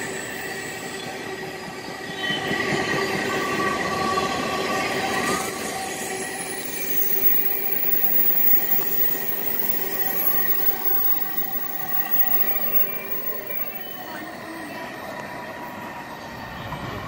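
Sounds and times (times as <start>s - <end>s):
rumble of train cars: 0.0s - 17.0s
steel wheels squealing: 5.0s - 14.6s.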